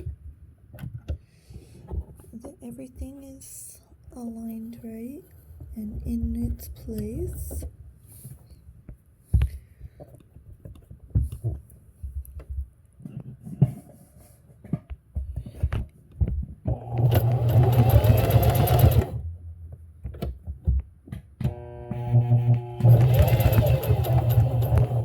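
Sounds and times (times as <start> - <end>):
sewing machine stitching: 16.7 - 19.2, 21.5 - 25.0.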